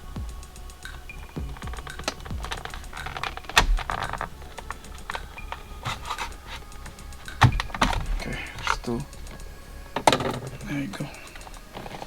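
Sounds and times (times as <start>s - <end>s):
electronic music with low beat: 0.0s - 12.0s
screwdriver clicking and scraping plastic: 0.9s - 12.0s.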